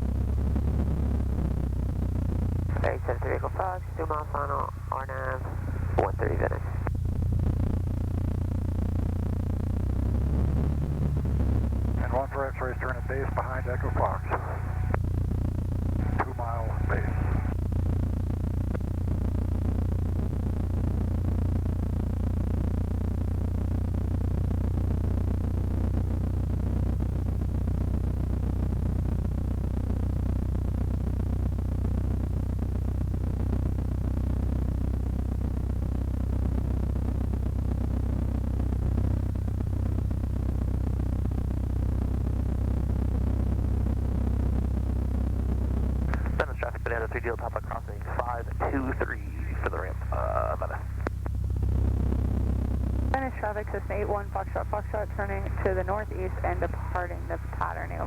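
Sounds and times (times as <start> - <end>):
light aircraft engine droning: 0.0 - 18.7, 45.4 - 58.0.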